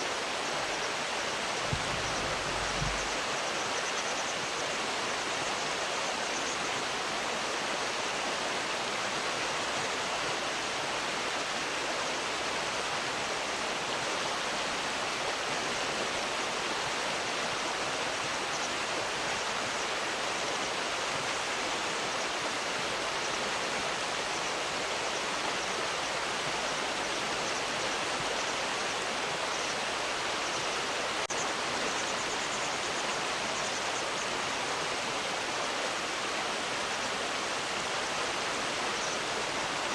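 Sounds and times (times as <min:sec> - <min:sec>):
flowing river water: 0:00.0 - 0:39.9.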